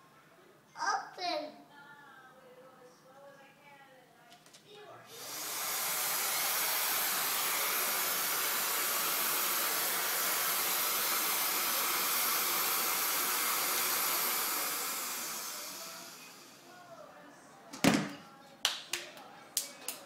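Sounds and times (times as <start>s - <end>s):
vacuum cleaner running: 5.1s - 16.9s.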